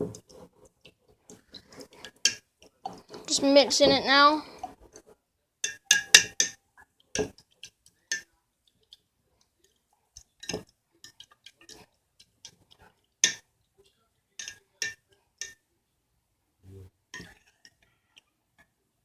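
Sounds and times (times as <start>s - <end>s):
utensil clinking against bowl: 5.6s - 6.6s, 7.2s - 8.3s, 10.3s - 13.4s, 14.3s - 15.6s.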